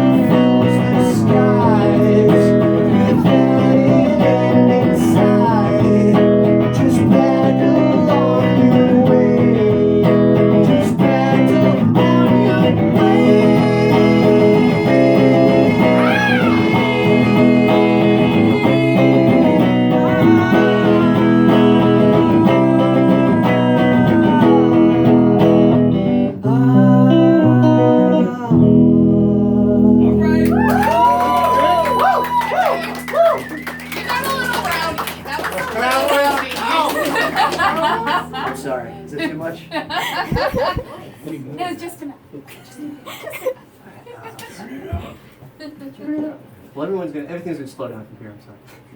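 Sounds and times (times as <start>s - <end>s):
looped electric guitar music: 0.0s - 31.9s, 36.4s - 40.0s.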